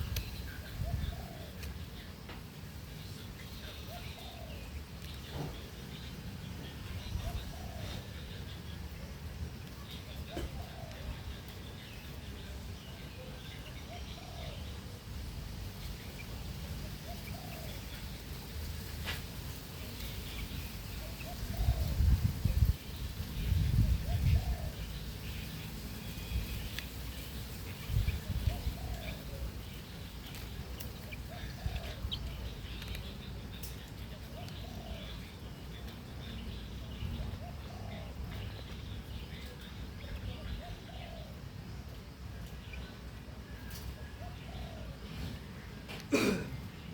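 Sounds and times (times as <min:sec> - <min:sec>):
birds cooing: 0:00.0 - 0:46.9
steady low rumble: 0:14.6 - 0:43.3.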